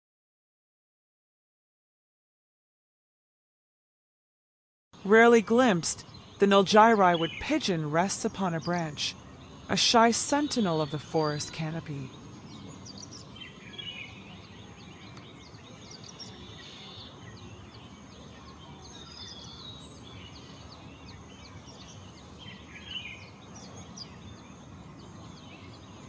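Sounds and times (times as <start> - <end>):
small birds chirping: 5.0 - 26.0.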